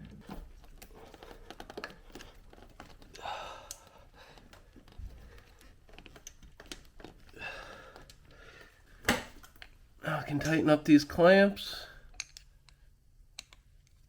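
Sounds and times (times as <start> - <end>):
breath of effort: 3.1 - 4.5, 7.3 - 8.8.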